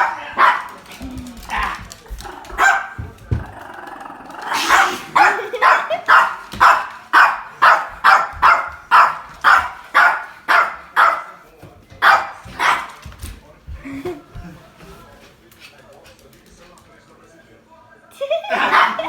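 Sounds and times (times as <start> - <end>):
dog barking: 0.0 - 0.8, 2.5 - 3.1, 4.5 - 11.4, 12.0 - 13.0, 18.5 - 19.0.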